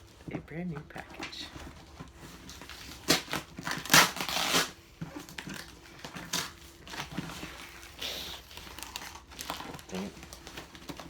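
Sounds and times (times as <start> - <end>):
packing tape ripping: 2.4 - 11.0.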